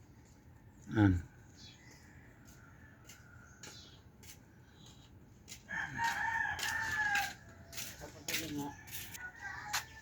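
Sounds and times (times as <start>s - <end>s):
rooster crowing: 2.0s - 3.7s, 5.6s - 7.8s, 8.6s - 10.0s.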